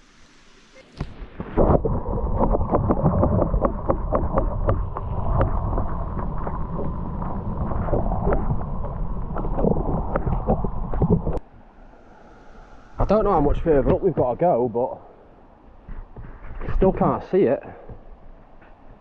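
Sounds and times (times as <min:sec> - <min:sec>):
wind on microphone: 0:01.0 - 0:14.2.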